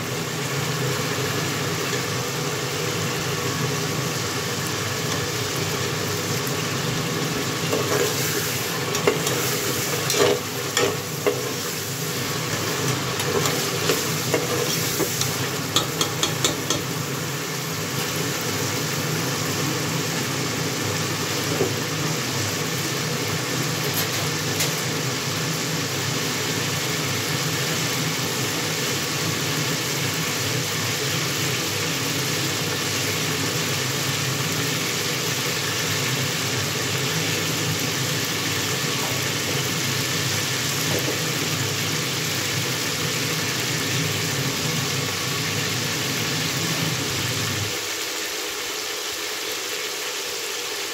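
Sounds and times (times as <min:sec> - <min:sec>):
food sizzling in hot oil: 0:00.0 - 0:50.9
metal ladle scraping pot: 0:07.7 - 0:11.8.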